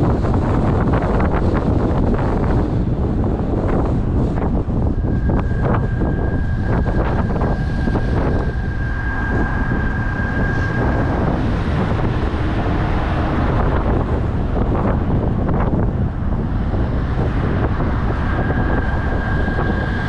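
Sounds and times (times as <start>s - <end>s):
low steady rumble: 0.0s - 20.0s
wind buffeting microphone: 0.0s - 20.0s
high whistle: 5.0s - 11.4s.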